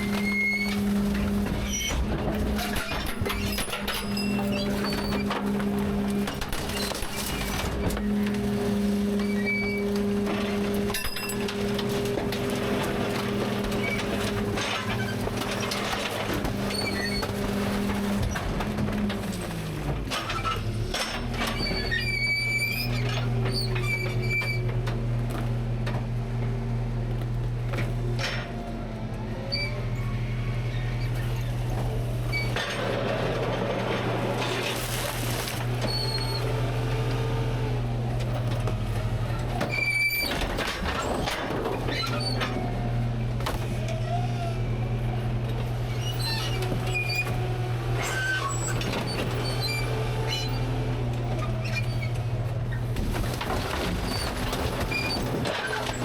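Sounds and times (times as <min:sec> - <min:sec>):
garbage truck engine humming: 0:00.0 - 0:56.0.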